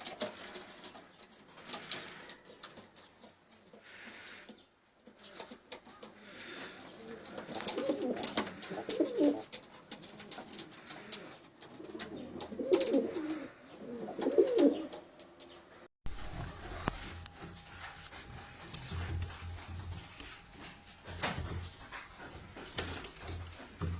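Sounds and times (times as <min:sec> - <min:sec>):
pigeons cooing: 0:00.0 - 0:15.8.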